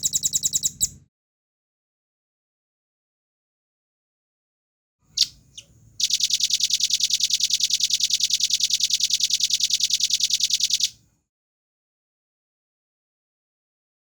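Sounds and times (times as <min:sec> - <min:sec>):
bird singing high trill: 0:05.1 - 0:11.0.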